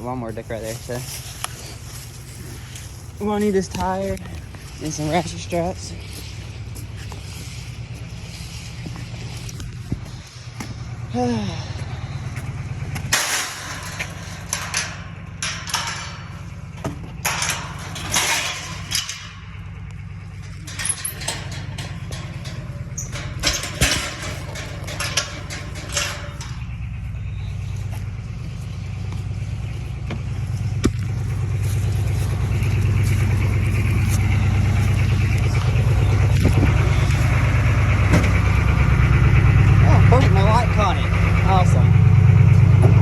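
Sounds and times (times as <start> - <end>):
vehicle engine running: 0.0 - 43.0
knocks and clatters: 12.3 - 43.0.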